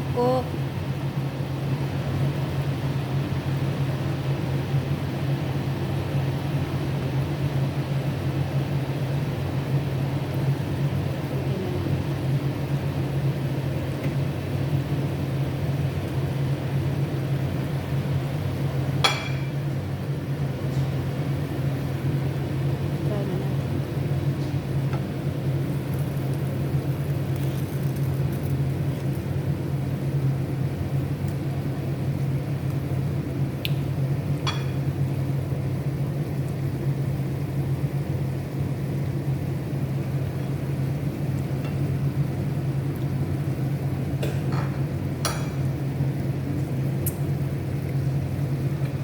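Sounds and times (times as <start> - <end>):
sauce simmering with faint sizzle: 24.2 - 34.2.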